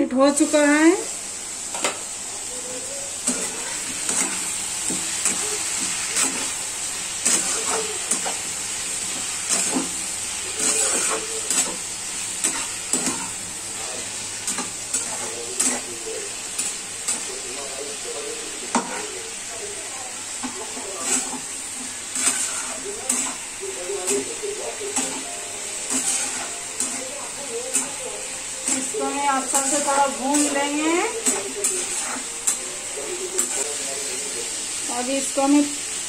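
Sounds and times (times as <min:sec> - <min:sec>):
pumpkin sizzling in oil: 0:00.0 - 0:36.0
metal spatula scraping pan: 0:03.2 - 0:06.6, 0:07.2 - 0:15.9, 0:18.6 - 0:19.2, 0:20.4 - 0:34.2.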